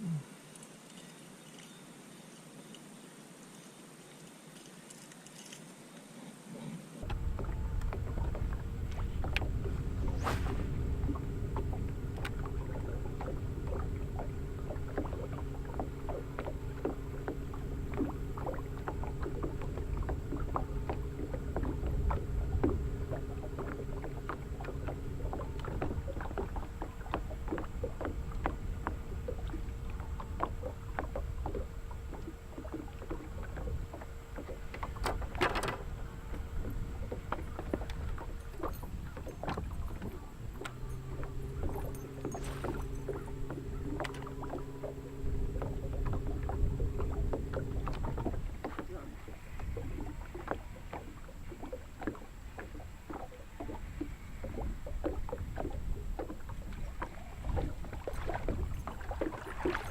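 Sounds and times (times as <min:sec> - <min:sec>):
boat motor humming: 0:07.0 - 0:59.9
wind rumble on microphone: 0:07.0 - 0:59.9
splash: 0:07.1 - 0:14.0, 0:37.6 - 0:44.9, 0:54.5 - 0:59.9
small ticks and knocks: 0:11.5 - 0:59.9.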